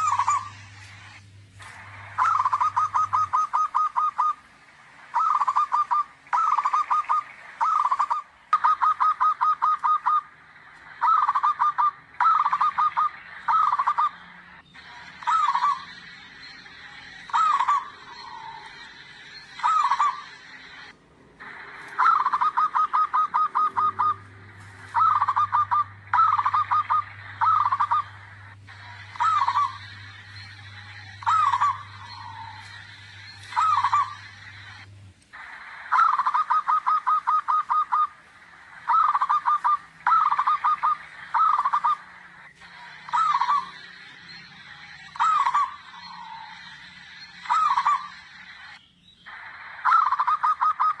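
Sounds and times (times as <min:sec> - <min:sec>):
dove cooing: 0:00.0 - 0:51.0.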